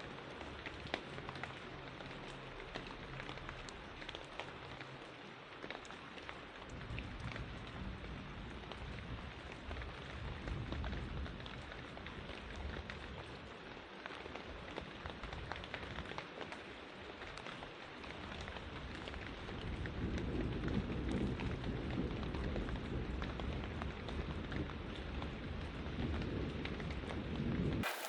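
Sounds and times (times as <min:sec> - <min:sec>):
rain falling: 0:00.0 - 0:26.5.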